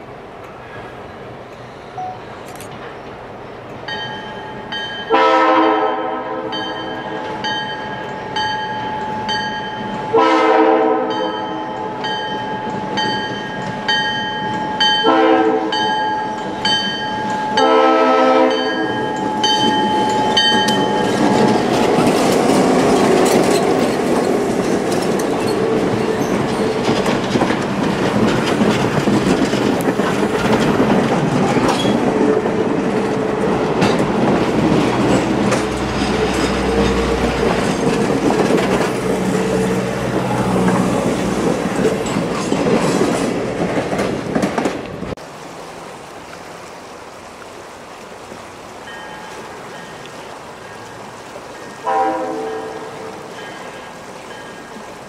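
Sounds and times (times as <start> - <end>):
railroad crossing bell: 1.9 - 2.4, 3.8 - 21.7, 48.8 - 50.9, 51.6 - 55.0
locomotive horn: 5.1 - 6.7, 10.1 - 11.9, 15.0 - 15.9, 17.6 - 19.2, 51.7 - 53.4
train wheels clattering on rails: 18.5 - 45.2.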